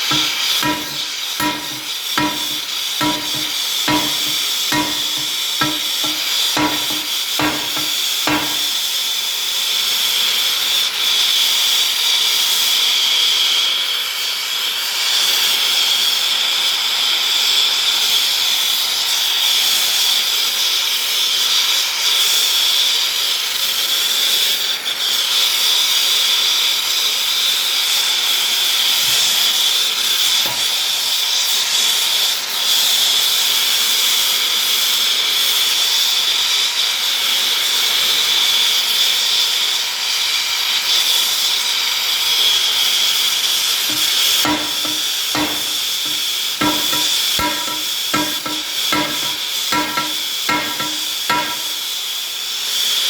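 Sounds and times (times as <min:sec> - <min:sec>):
hammer striking metal rim: 0:00.0 - 0:08.9, 0:43.9 - 0:51.9
steady loud hiss: 0:00.0 - 0:08.9.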